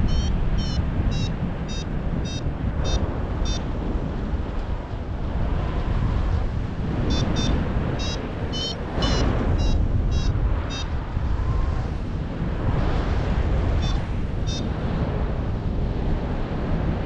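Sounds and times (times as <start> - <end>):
short high beeps: 0.0 - 3.6, 7.1 - 10.9
wind buffeting microphone: 0.0 - 17.0.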